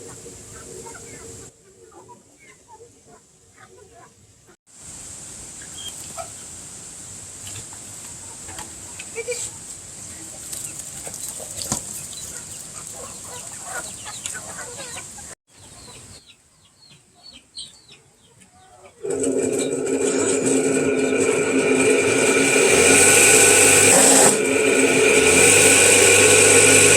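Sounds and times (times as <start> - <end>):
chickens clucking: 0.0 - 4.4, 5.6 - 6.5, 7.4 - 21.8
loud mechanical drone: 19.0 - 26.9.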